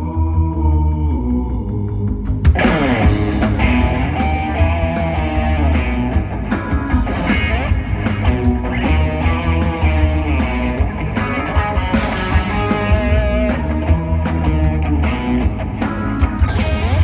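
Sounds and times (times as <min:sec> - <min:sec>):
bass guitar: 0:00.0 - 0:17.0
drums: 0:01.5 - 0:17.0
electric guitar: 0:02.5 - 0:17.0.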